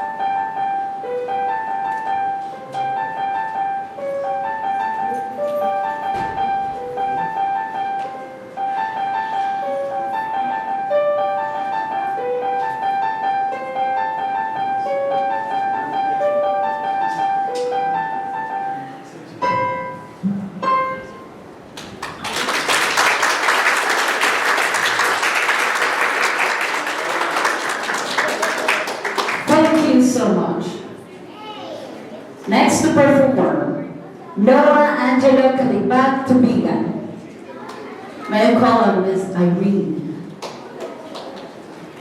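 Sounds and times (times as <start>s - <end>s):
piano playing quick melody: 0.0s - 31.0s
audience applauding: 21.8s - 30.1s, 40.4s - 42.0s.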